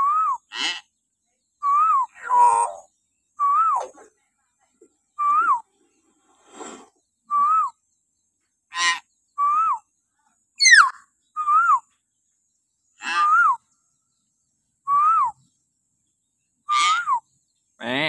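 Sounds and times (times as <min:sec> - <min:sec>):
myna calling shrilly: 0:10.6 - 0:11.0.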